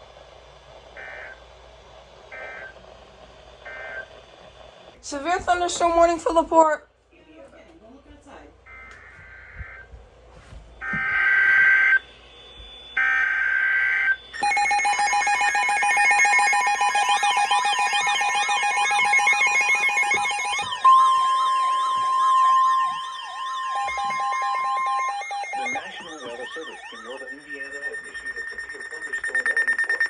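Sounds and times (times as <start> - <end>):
steady alarm tone: 0.9 - 1.5, 2.3 - 2.8, 3.6 - 4.4, 8.6 - 10.0, 10.7 - 30.0
wailing electronic alarm: 1.0 - 1.4, 2.3 - 2.8, 3.6 - 4.1, 8.7 - 9.9, 10.8 - 30.0
warbling data bursts: 13.2 - 30.0.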